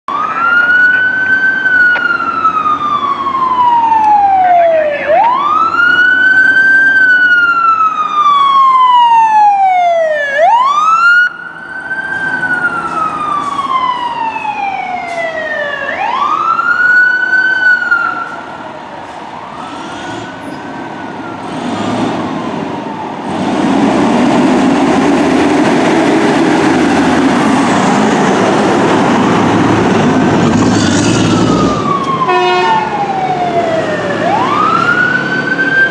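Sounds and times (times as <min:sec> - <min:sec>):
fire engine siren wailing: 0:00.1 - 0:35.9
vehicle passing close: 0:19.4 - 0:35.9.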